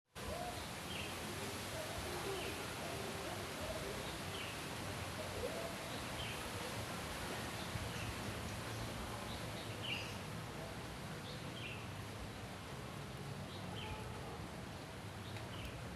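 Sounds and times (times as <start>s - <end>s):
background noise: 0.1s - 15.9s.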